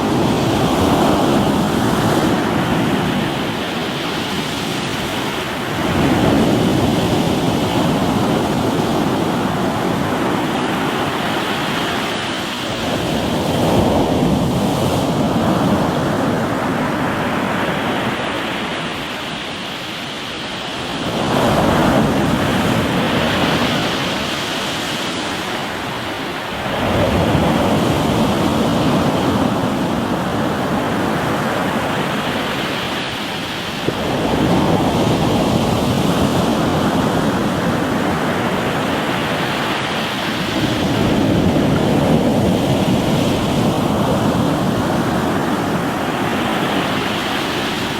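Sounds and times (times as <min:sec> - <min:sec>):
waves breaking on rocky shore: 0:00.0 - 0:47.9.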